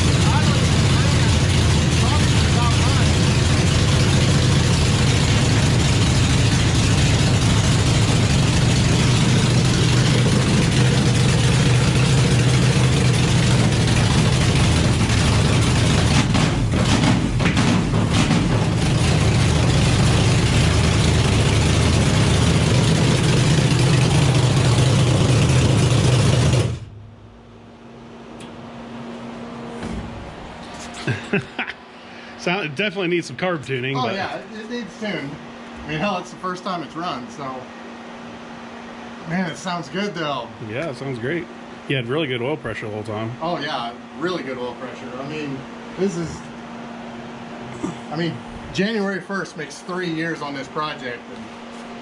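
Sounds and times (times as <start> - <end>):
car engine running: 0.0 - 31.2.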